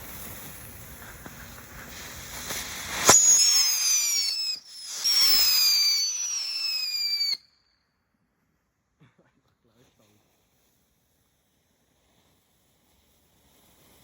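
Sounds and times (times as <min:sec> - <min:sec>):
firework crack: 0:00.0 - 0:07.6, 0:10.0 - 0:14.0
firework whistles sliding down: 0:00.0 - 0:07.8, 0:11.8 - 0:14.0.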